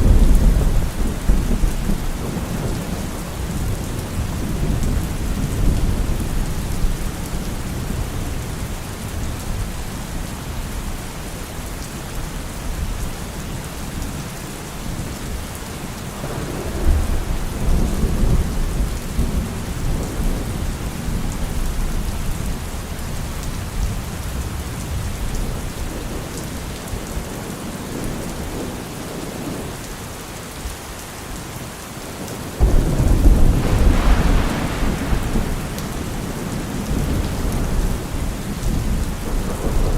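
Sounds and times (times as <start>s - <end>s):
thunder rumbling: 0.0s - 8.4s, 16.2s - 21.9s, 32.6s - 39.9s
steady rain falling: 0.0s - 39.9s.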